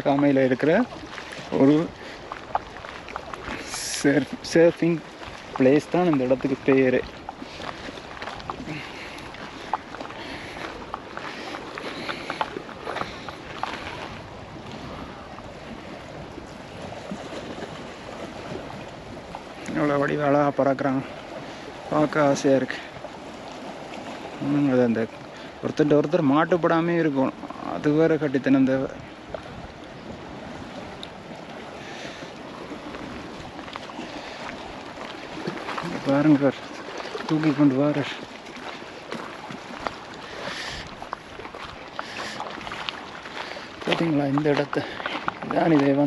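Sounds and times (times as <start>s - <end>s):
steady wind: 0.0s - 46.0s
wind rushing over microphone: 3.3s - 20.2s.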